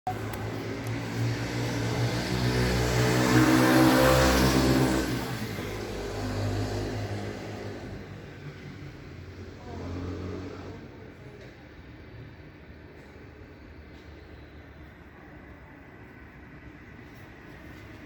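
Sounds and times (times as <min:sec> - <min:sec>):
vehicle passing close by: 0:00.1 - 0:08.7
low rumble of traffic: 0:00.1 - 0:18.0.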